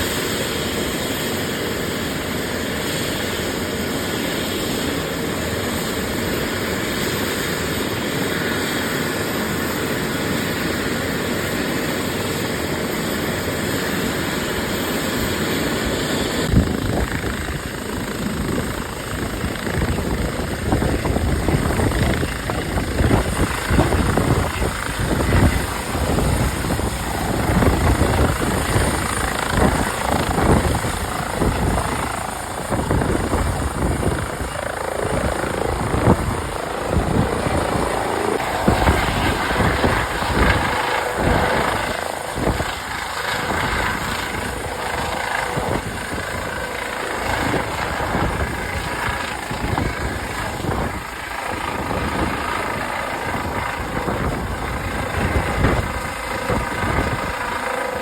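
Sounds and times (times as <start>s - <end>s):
wind buffeting microphone: 16.4s - 58.0s.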